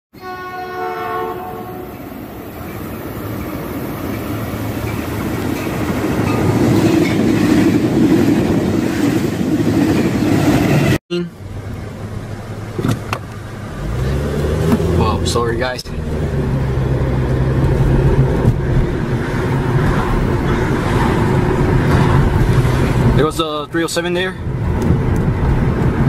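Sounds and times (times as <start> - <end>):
train horn chord: 0.2 - 2.2
street traffic: 0.2 - 26.0
train rumble and rail clatter: 0.4 - 13.8, 14.4 - 26.0.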